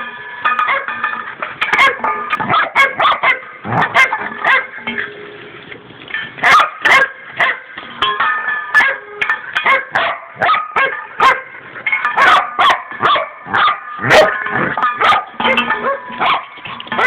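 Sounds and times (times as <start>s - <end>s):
dog barking and yipping: 0.6s - 1.0s, 1.6s - 4.8s, 6.4s - 7.7s, 8.7s - 11.5s, 12.1s - 17.0s
food dish clattering: 11.2s - 17.0s.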